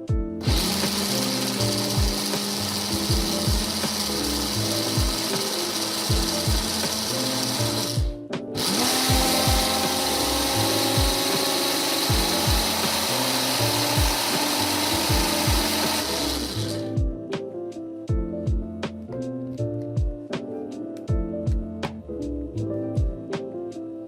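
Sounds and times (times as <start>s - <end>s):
music with steady beat: 0.0s - 24.0s
electric blender running: 0.4s - 17.0s.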